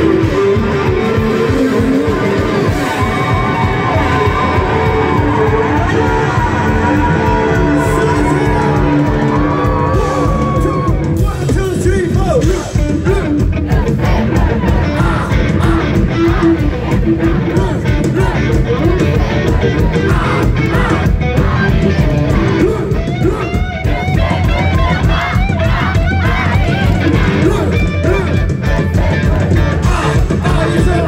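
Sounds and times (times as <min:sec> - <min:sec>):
drums pounding: 0:00.0 - 0:31.0
punk rock band playing live: 0:00.0 - 0:31.0
person singing: 0:12.5 - 0:31.0.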